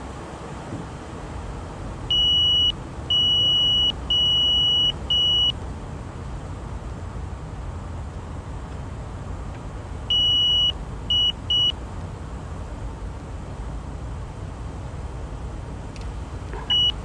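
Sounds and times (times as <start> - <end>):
aircraft cockpit low noise: 0.0 - 17.0
high electronic beeps: 2.1 - 5.6, 16.6 - 17.0.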